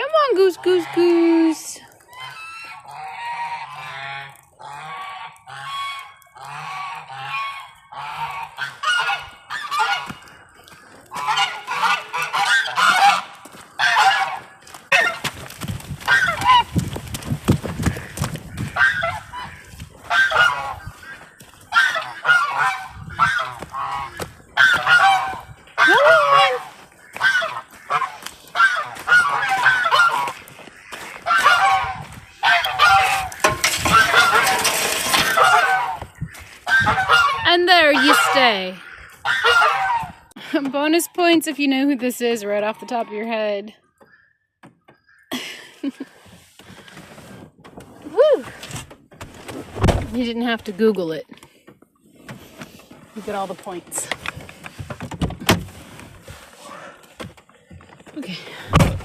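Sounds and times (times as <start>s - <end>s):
geese honking: 0.0s - 15.3s, 16.0s - 16.8s, 17.8s - 41.4s, 42.2s - 44.3s.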